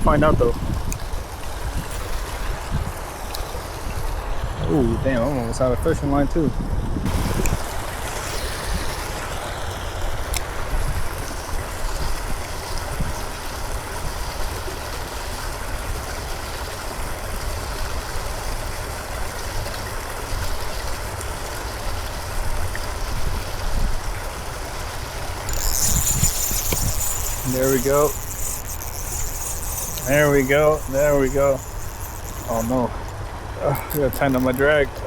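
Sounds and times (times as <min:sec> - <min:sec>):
wind rumble on microphone: 0:00.0 - 0:14.6, 0:22.2 - 0:24.3.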